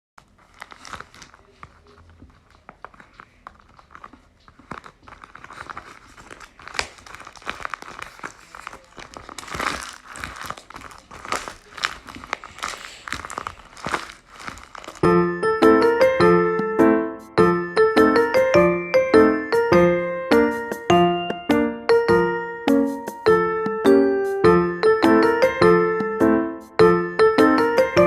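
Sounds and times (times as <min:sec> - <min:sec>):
craft materials crinkling: 0:00.2 - 0:15.1.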